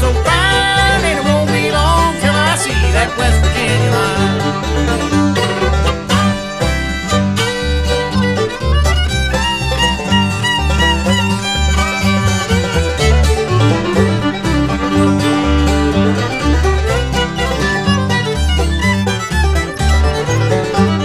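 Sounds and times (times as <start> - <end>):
banjo: 0.0 - 21.0
bass pulse: 0.0 - 21.0
fiddle playing lead line: 0.0 - 21.0
guitar: 0.0 - 21.0.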